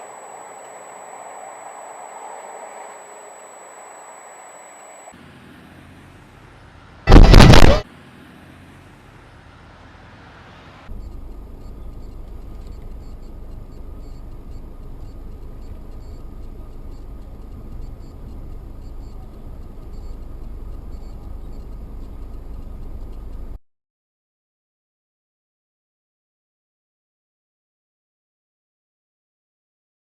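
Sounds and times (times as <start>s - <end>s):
road and engine rumble: 0.0s - 23.6s.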